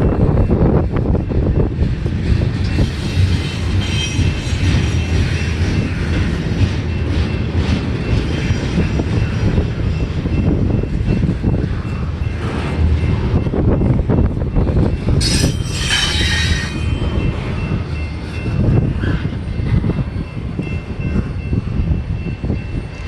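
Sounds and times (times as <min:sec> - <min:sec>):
freight train wheels clattering: 0:00.0 - 0:23.0
wind buffeting microphone: 0:00.0 - 0:23.0
faint high squeal: 0:15.2 - 0:17.3.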